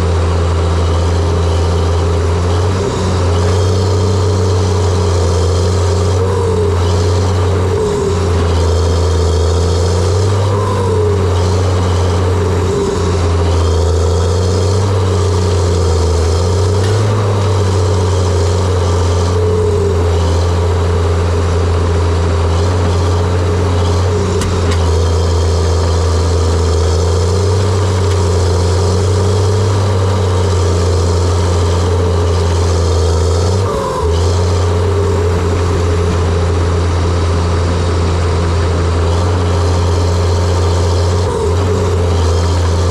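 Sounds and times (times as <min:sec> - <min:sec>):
diesel engine running: 0:00.0 - 0:42.9
short squeals: 0:02.6 - 0:20.6.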